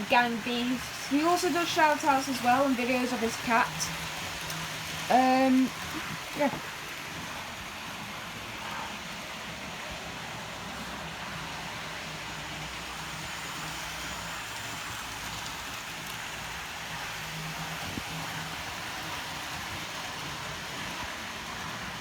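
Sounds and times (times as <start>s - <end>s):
model train motor hum: 0.0s - 22.0s
wheels rushing on track: 0.0s - 22.0s.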